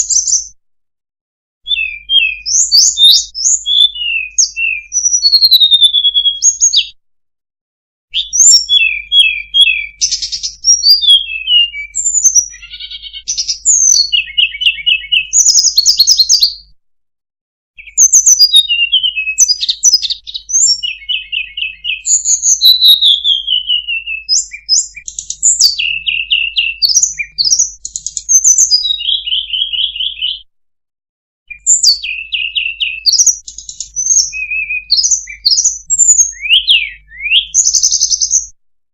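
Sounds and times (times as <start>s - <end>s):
bird chirps trills and whistles: 0.0s - 0.6s, 1.6s - 7.0s, 8.1s - 16.7s, 17.8s - 30.5s, 31.5s - 38.6s.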